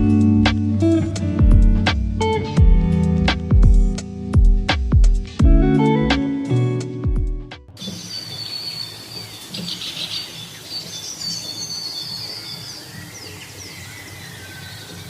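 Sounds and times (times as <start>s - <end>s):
small birds chirping: 7.8s - 15.0s.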